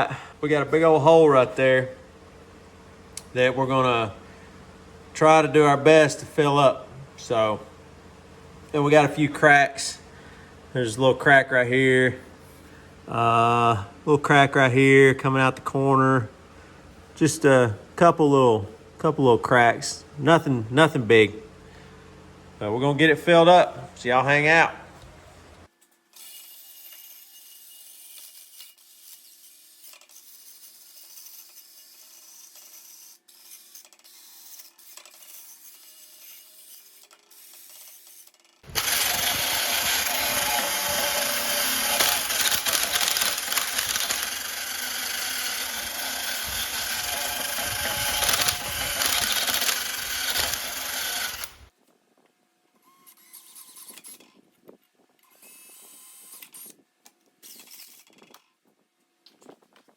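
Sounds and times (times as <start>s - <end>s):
power tool working metal: 26.2s - 51.7s
clicks: 38.7s - 51.6s.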